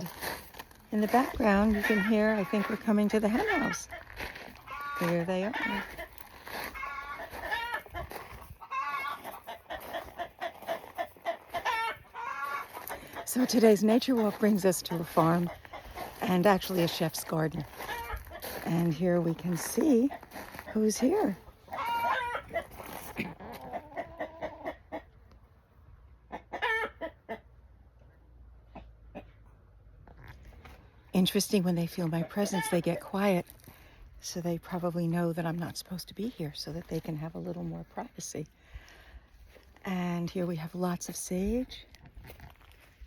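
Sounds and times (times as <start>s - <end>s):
chickens clucking: 1.0s - 25.4s, 26.2s - 27.6s
hen drawn-out call: 4.7s - 6.1s, 6.8s - 8.0s, 11.5s - 13.2s, 21.2s - 22.7s.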